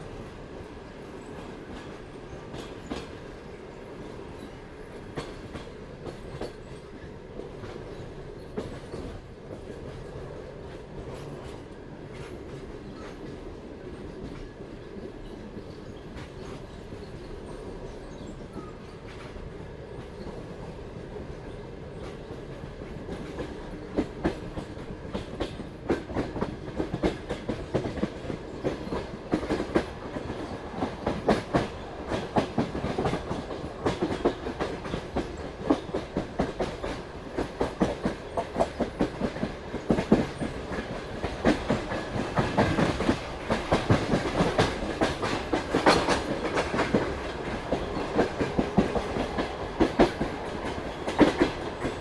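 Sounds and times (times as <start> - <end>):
train rolling rumble: 0.0 - 52.0
train wheels clicking over rail joints: 4.4 - 19.4, 22.0 - 52.0.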